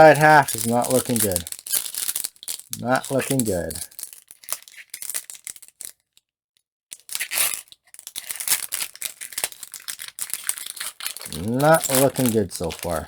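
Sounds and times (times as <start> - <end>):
cards being handled: 0.0 - 1.5, 2.8 - 3.8, 11.2 - 13.0
foil wrapper crinkling and tearing: 0.0 - 6.0, 7.0 - 13.0.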